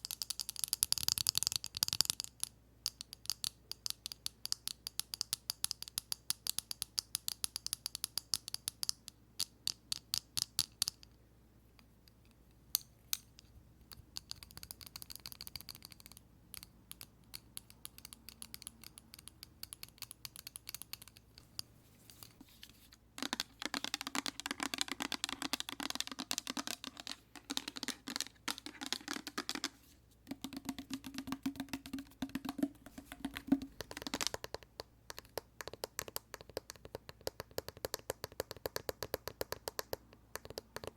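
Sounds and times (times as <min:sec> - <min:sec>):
fingertips tapping plastic bottle: 0:23.2 - 0:40.9.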